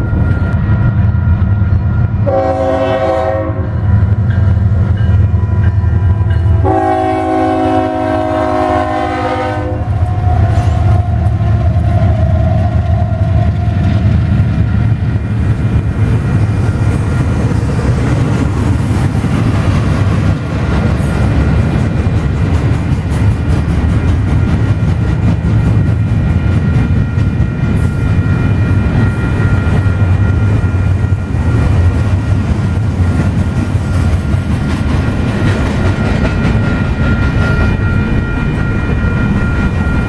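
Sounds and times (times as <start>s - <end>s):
train rumbling on rails: 0.0s - 40.0s
train horn blasts: 2.2s - 4.2s, 5.3s - 11.0s.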